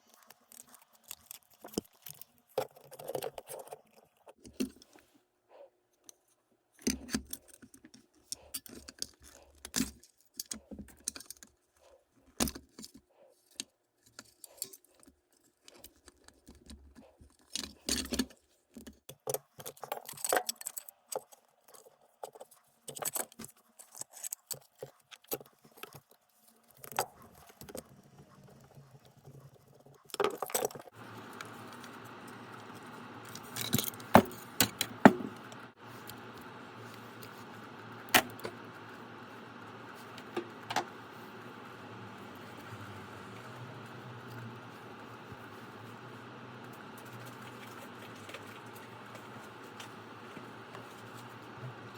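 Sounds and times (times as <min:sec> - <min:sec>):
plastic parts clicking and rattling: 0:00.0 - 0:05.0, 0:06.0 - 0:38.9.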